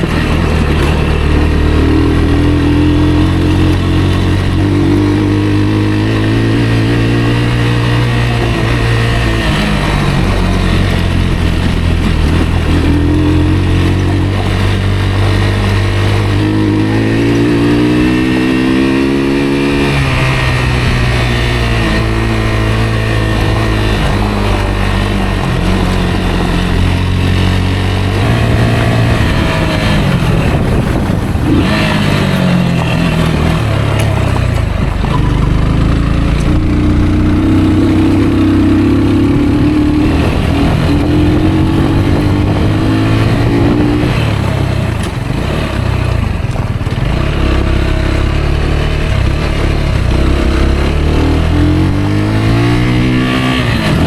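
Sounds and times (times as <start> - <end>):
motorcycle engine revving: 0.0 - 54.0
wind hiss: 28.2 - 35.1.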